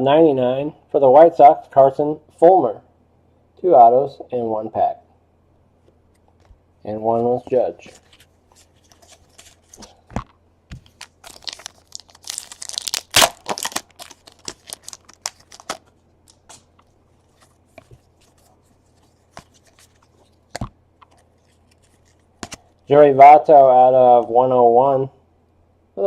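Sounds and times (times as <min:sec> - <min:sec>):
wrapper tearing and crinkling: 0:10.8 - 0:16.7.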